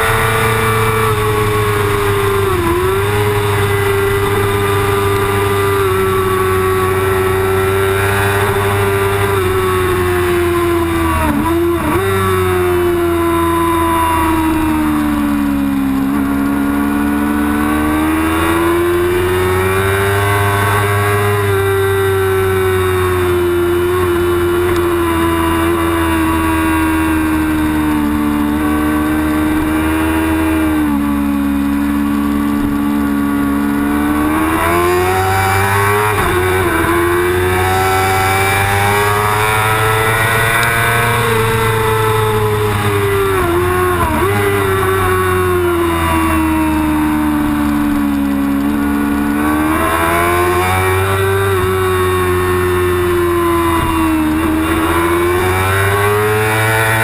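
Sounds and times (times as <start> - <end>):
motorcycle engine at racing revs: 0.0 - 57.0
motorcycle gear shifts: 23.9 - 57.0.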